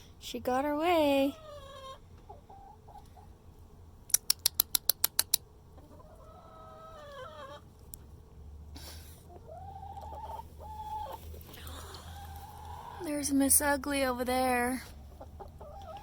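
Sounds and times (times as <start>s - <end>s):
sharp clicks: 4.1s - 5.4s
hens calling: 5.8s - 7.7s, 9.3s - 13.6s, 14.9s - 16.0s.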